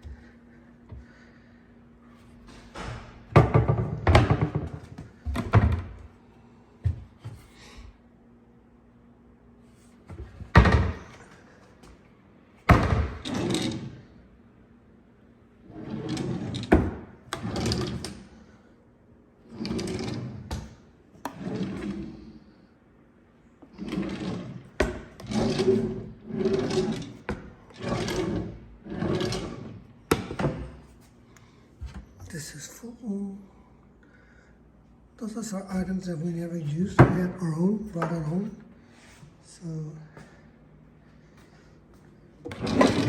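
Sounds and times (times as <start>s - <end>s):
drawers sliding and rattling: 12.7s - 14.0s, 15.7s - 18.3s, 19.5s - 22.2s, 23.7s - 30.9s, 42.4s - 43.0s.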